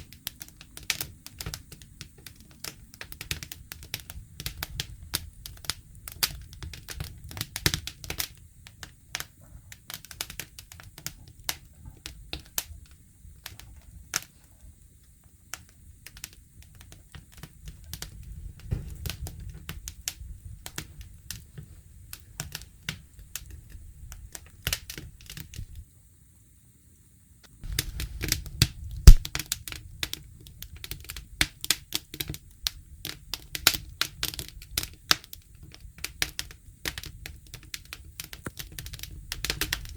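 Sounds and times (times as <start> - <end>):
campfire crackling: 0.0 - 26.3, 27.4 - 39.9.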